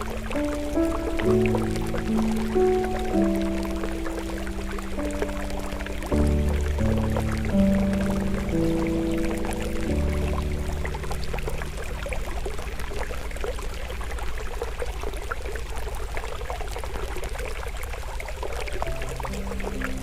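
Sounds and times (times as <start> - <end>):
campfire crackling: 0.0 - 14.3
soft sustained music tones: 0.0 - 20.0
stream water flowing: 0.0 - 20.0.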